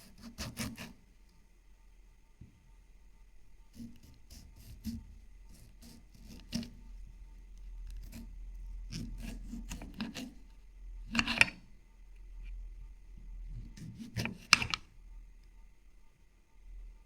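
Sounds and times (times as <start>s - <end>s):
rubbing and scraping food: 0.0s - 1.3s, 3.7s - 11.7s, 13.2s - 14.9s.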